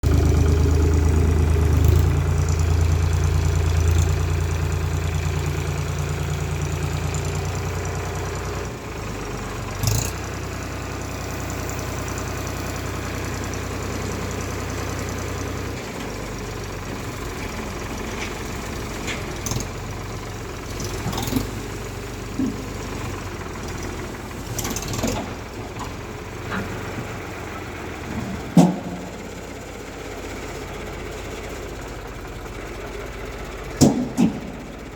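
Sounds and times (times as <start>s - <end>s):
tractor diesel engine running: 0.0s - 34.9s
short knocks and clanks: 24.6s - 29.4s, 33.8s - 34.7s.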